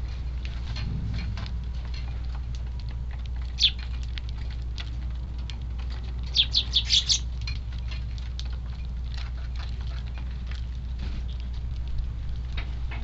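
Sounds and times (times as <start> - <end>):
wind rumble on microphone: 0.0 - 13.0
sparrows chirping: 3.5 - 4.0, 6.2 - 7.3.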